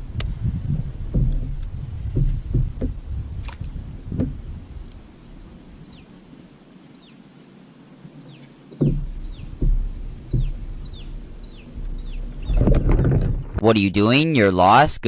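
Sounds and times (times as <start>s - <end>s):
dull low thumps: 0.0s - 6.0s, 8.8s - 13.7s.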